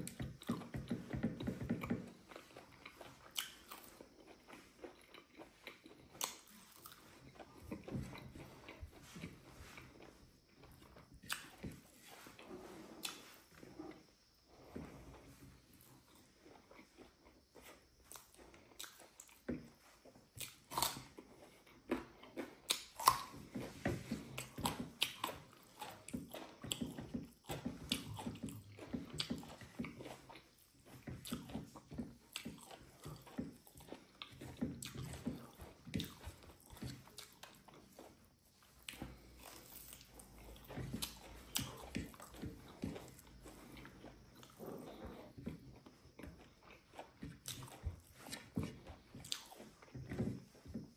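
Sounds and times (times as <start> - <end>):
chewing and biting food: 0.0 - 50.9
wet mouth clicks and smacks: 5.1 - 6.5.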